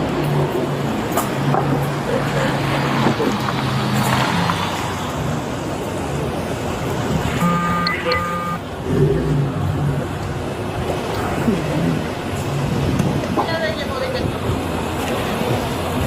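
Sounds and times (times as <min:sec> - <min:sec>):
street traffic: 0:00.0 - 0:16.0
brief two-part tone: 0:07.4 - 0:08.6.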